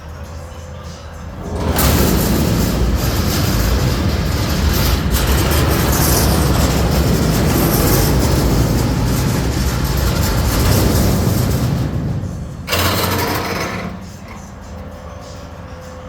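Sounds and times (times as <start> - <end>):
garbage truck running: 0.6 - 15.6.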